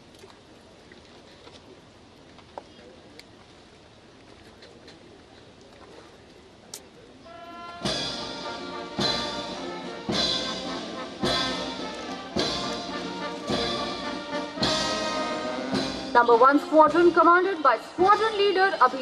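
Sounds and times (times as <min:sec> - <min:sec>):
brass band playing a march: 0:07.3 - 0:19.0
heavy drum beats: 0:07.7 - 0:19.0.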